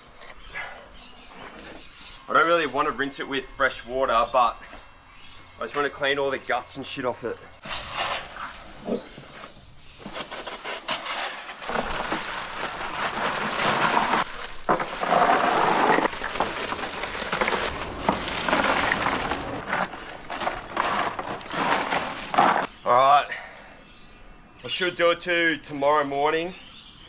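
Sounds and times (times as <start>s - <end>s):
ice cubes clattering into plastic box: 11.6s - 22.7s.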